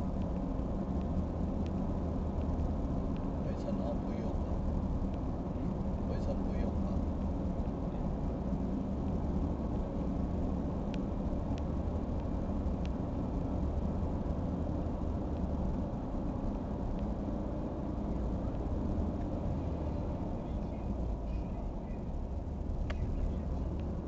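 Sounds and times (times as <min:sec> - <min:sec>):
faint clicks: 0:00.0 - 0:24.0.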